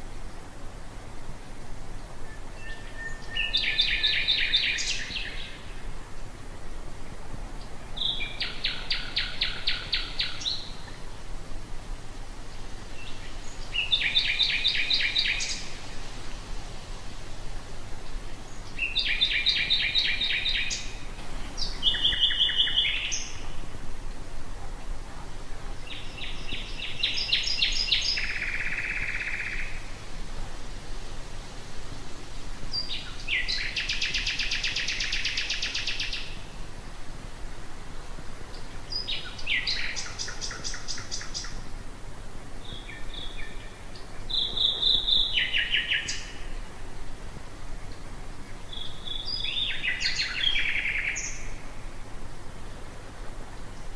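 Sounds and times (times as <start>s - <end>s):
nightingale singing trills: 2.2s - 6.0s, 7.5s - 11.2s, 12.2s - 16.6s, 18.0s - 23.8s, 25.6s - 30.0s, 32.7s - 36.6s, 38.5s - 41.7s, 42.6s - 46.8s, 47.8s - 51.8s.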